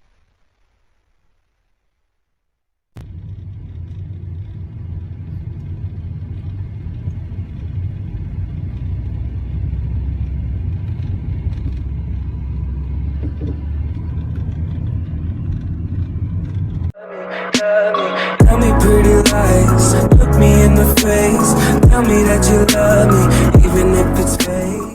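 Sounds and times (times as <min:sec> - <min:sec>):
car engine and road noise: 0:03.0 - 0:17.0.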